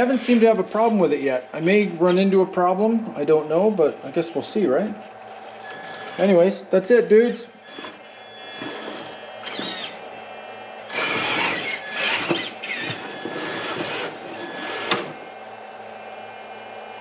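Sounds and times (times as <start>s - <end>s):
rc car motor whine: 5.6s - 6.5s, 7.1s - 15.3s.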